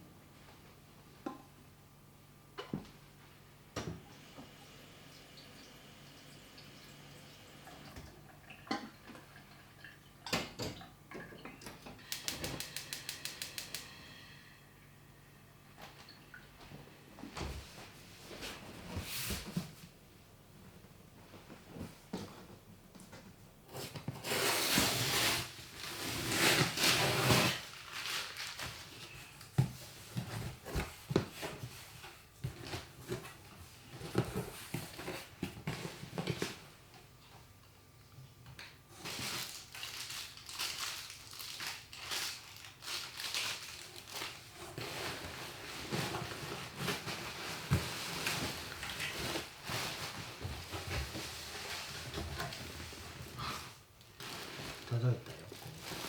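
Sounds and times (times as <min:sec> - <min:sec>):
rustling: 0:23.7 - 0:36.7, 0:38.9 - 0:56.0.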